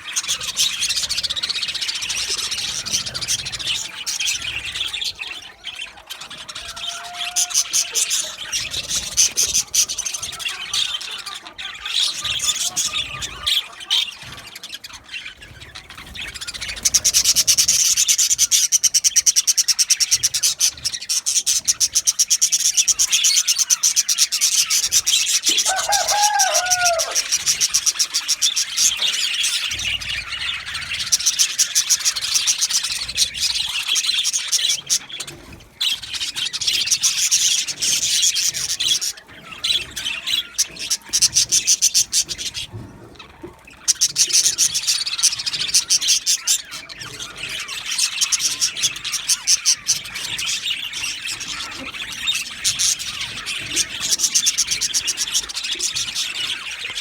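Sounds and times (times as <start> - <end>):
budgerigars chattering: 0.0 - 57.0.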